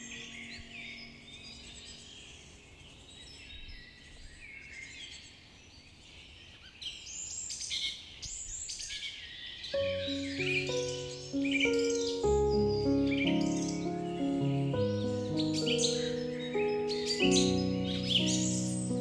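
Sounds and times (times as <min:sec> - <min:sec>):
many birds chirping and singing: 0:00.0 - 0:19.0
soft held music tones: 0:09.8 - 0:19.0.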